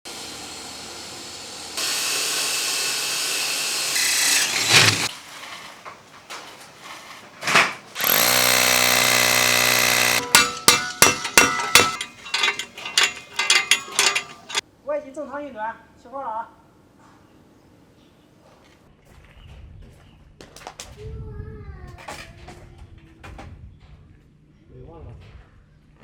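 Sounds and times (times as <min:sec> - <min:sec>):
electric drill whining: 0:00.1 - 0:05.1, 0:08.0 - 0:14.6
sharp clicks and knocks: 0:08.0 - 0:14.6.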